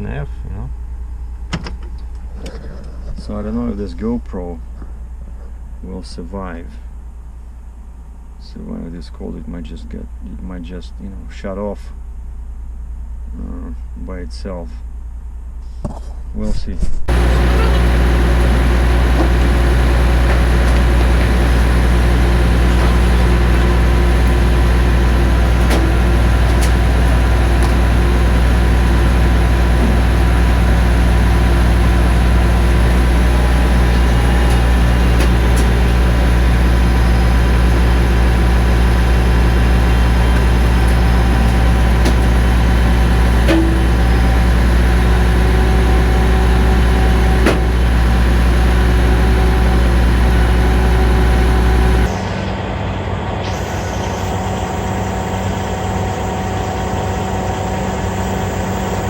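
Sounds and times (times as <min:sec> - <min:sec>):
diesel engine idling: 0:17.1 - 0:59.0.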